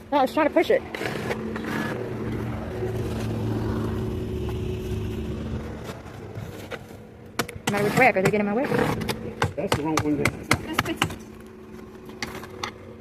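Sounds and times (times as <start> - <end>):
vehicle engine running: 0.0 - 7.4.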